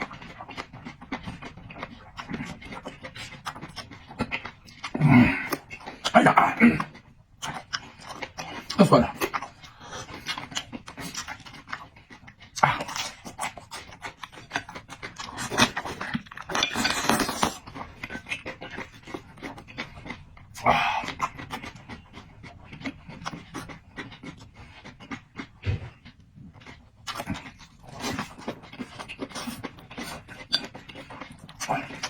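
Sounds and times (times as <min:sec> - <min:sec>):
slurping and chewing noodles: 0:00.0 - 0:32.0.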